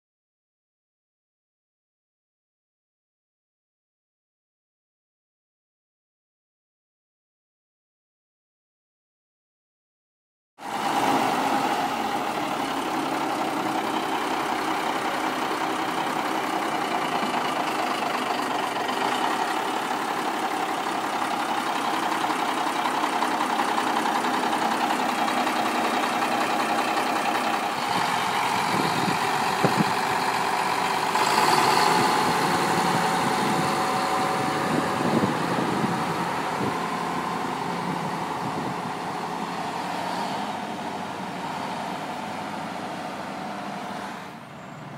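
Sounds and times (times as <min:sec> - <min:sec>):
diesel engine idling: 0:10.6 - 0:44.9.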